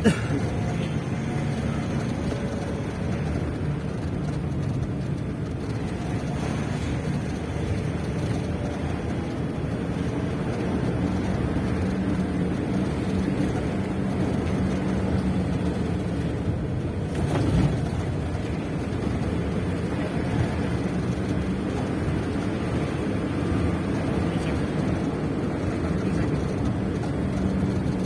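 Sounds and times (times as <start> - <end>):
engine running: 0.0 - 28.0.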